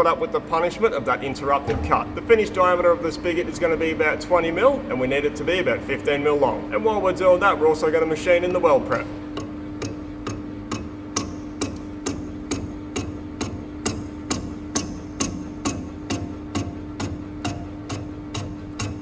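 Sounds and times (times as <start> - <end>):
machine hum: 0.0 - 19.0
lathe insert ticking: 7.7 - 19.0.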